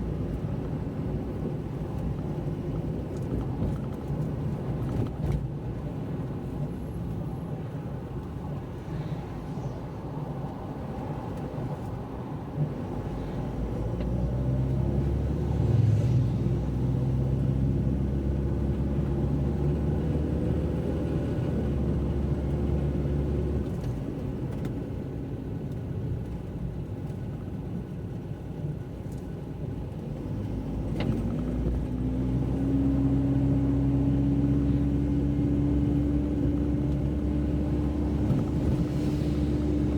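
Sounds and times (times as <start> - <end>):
car driving on wet road: 0.0 - 39.9
car engine accelerating: 30.1 - 39.9.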